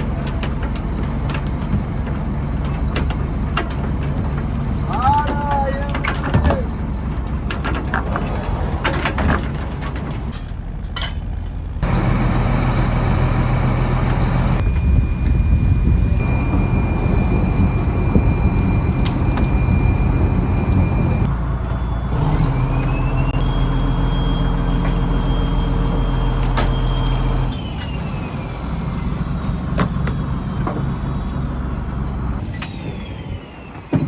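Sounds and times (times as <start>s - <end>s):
diesel engine humming: 0.0s - 34.0s
machinery whine: 11.8s - 34.0s.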